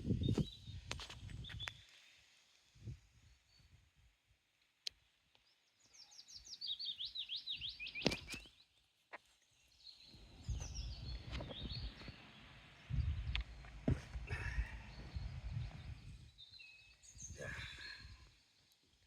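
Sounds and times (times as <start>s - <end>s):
low rustling noise: 10.1s - 16.3s.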